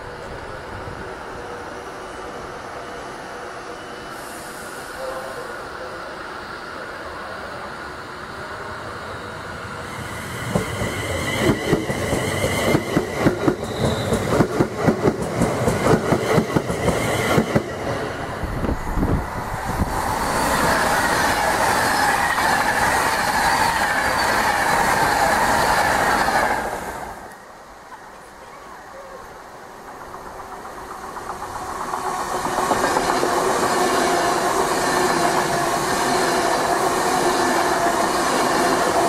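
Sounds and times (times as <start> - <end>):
train rolling rush: 0.0 - 39.0
train wheels clickety-clack: 10.4 - 18.1, 29.8 - 39.0.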